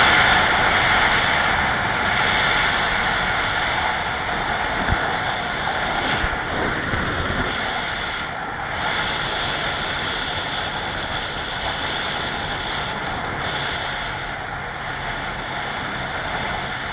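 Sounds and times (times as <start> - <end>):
constant rushing noise: 0.0 - 16.9
motorcycle engine running: 0.0 - 16.9.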